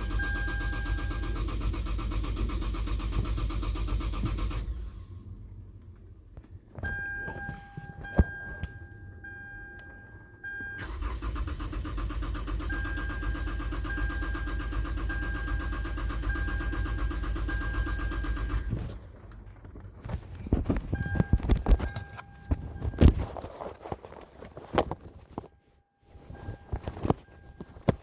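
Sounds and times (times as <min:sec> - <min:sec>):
car starter motor cranking: 0:00.0 - 0:05.4, 0:10.8 - 0:19.2
electronic warning beep: 0:06.8 - 0:11.1.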